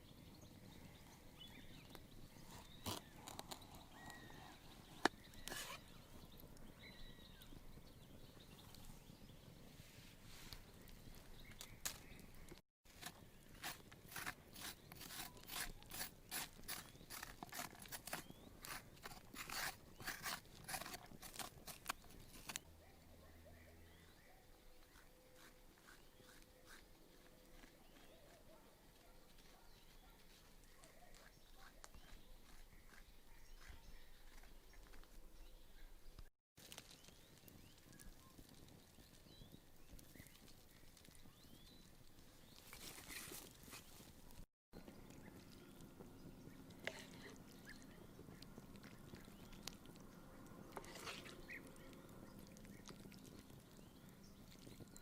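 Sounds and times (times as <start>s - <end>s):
faint outdoor ambience: 0.0s - 55.0s
sharp crisp clicks and scrapes: 5.0s - 5.8s, 10.4s - 22.7s.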